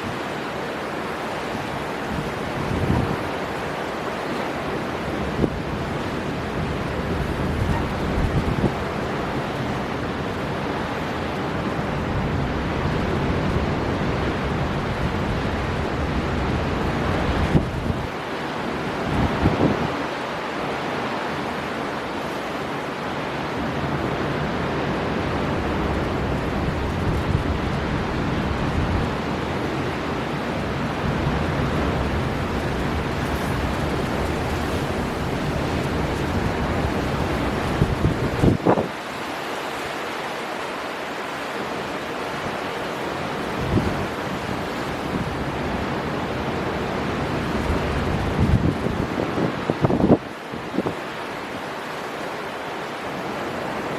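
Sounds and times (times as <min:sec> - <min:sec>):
storm wind: 0:00.0 - 0:53.9
surf: 0:00.0 - 0:53.9
surf breaking: 0:25.6 - 0:48.9.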